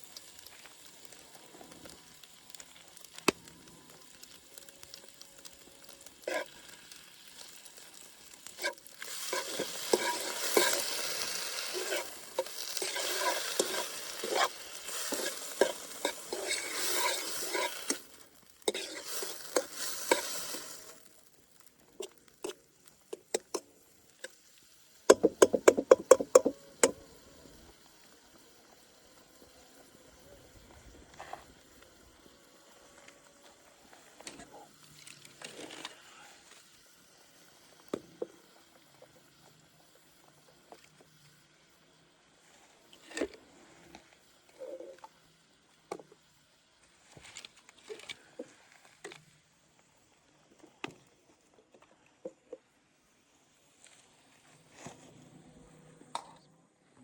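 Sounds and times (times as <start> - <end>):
food sizzling in fat: 0.0 - 49.2
utensil scraping in pan: 1.8 - 21.1, 25.1 - 27.0.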